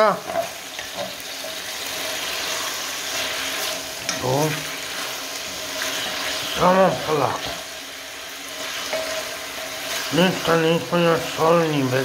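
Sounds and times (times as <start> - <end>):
chicken sizzling in a frying pan: 0.0 - 12.0
wooden spoon stirring: 8.4 - 11.4.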